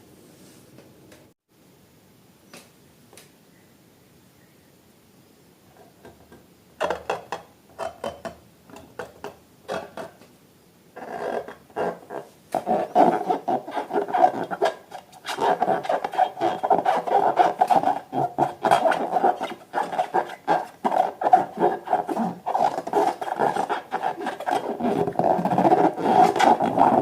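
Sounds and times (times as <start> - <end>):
slime and balloons squeaking rub: 11.0 - 27.0.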